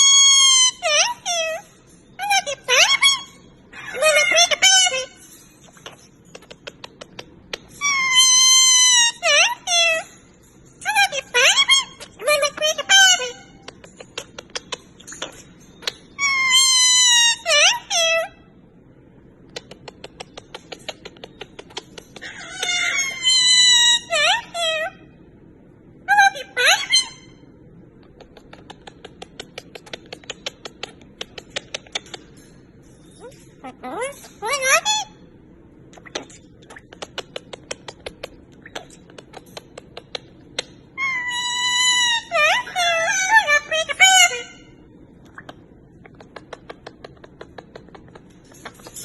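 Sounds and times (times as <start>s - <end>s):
parrot meowing: 0.0s - 5.2s, 22.2s - 25.0s
parrot clicking: 5.8s - 7.7s, 13.6s - 16.0s, 19.5s - 22.8s, 28.0s - 32.4s, 36.0s - 40.8s, 45.3s - 49.0s.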